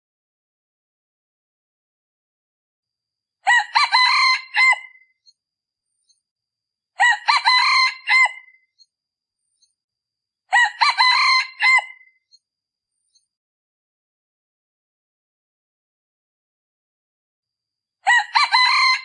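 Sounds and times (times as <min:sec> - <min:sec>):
rooster crowing: 0:03.4 - 0:05.0, 0:07.0 - 0:08.6, 0:10.5 - 0:12.1, 0:18.0 - 0:19.0.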